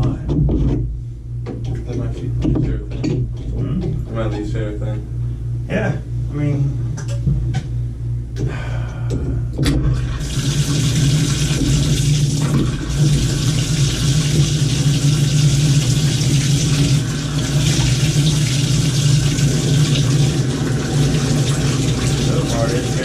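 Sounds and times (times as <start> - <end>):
steady low hum: 0.0 - 23.0
water rushing from faucet: 10.0 - 23.0.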